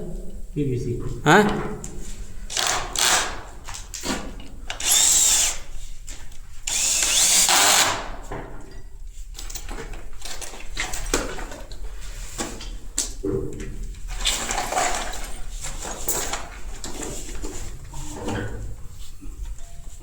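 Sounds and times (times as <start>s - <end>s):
handheld power tool running: 2.5s - 3.5s, 4.7s - 5.7s, 6.6s - 8.1s.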